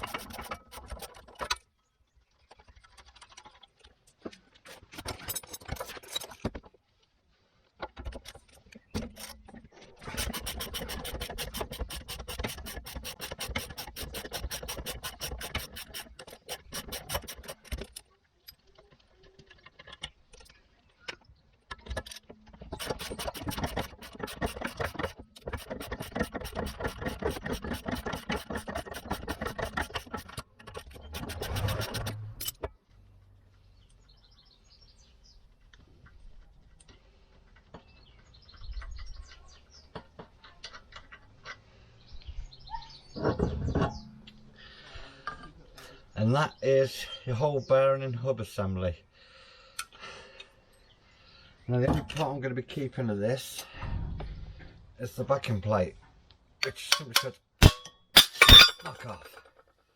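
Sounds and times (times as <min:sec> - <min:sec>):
knocks and scrapes: 0:00.0 - 0:01.6, 0:02.4 - 0:06.8, 0:07.6 - 0:18.0, 0:18.6 - 0:32.7, 0:43.0 - 0:44.2, 0:56.6 - 0:59.2
ratchet wrench clicking: 0:10.2 - 0:17.8, 0:22.8 - 0:32.6.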